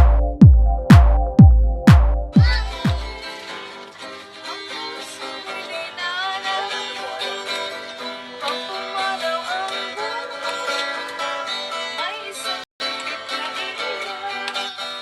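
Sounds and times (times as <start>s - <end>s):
plucked string music: 0.0s - 5.6s.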